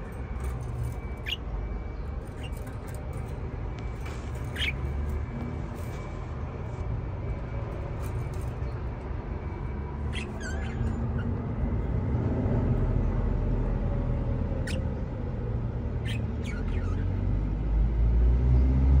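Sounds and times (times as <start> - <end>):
budgerigars chirping: 0.5 - 1.5, 2.2 - 3.3, 4.4 - 4.9, 10.0 - 11.4, 14.6 - 15.0, 16.0 - 17.2.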